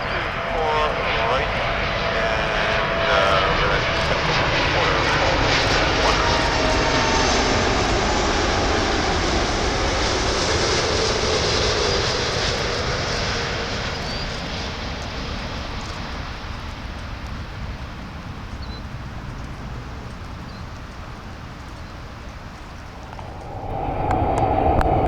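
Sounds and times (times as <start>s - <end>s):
whining engine tones: 0.0s - 14.8s, 22.6s - 25.0s
airliner engines passing: 0.0s - 25.0s.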